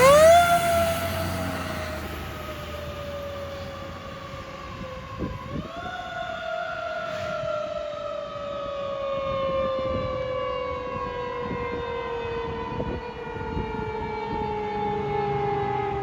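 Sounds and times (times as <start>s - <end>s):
truck engine rumble: 0.0s - 5.7s
fire truck siren: 0.0s - 16.0s.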